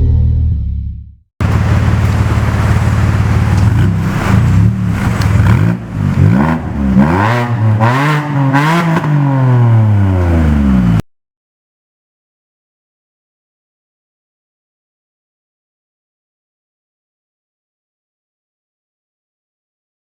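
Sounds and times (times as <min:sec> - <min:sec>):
car engine idling and revving: 0:01.4 - 0:11.0.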